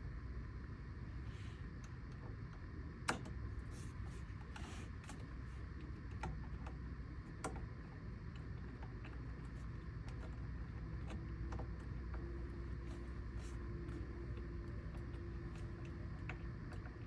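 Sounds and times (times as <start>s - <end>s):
low steady hum: 0.0s - 17.0s
light clicks and taps: 4.4s - 17.0s.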